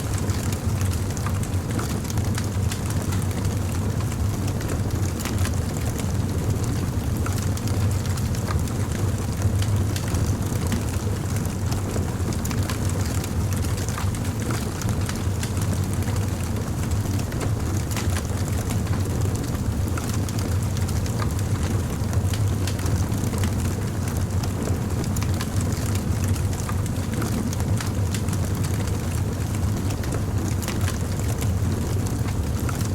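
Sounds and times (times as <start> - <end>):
fire crackling and popping: 13.5 - 32.9.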